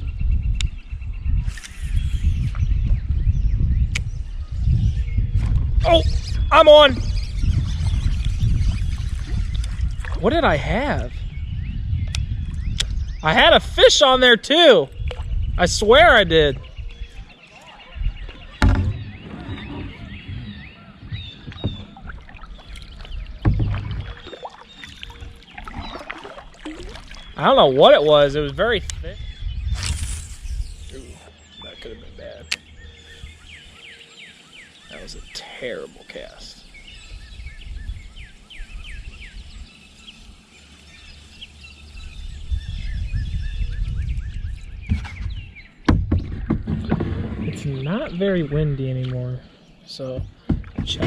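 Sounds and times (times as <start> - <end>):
small birds chirping: 0.0 - 51.0
fishing boat engine rumble: 16.6 - 29.4
low rumbling noise: 18.1 - 24.2
sharp knocks with low thump: 18.6 - 22.4, 23.3 - 24.3, 44.8 - 47.9, 50.0 - 51.0.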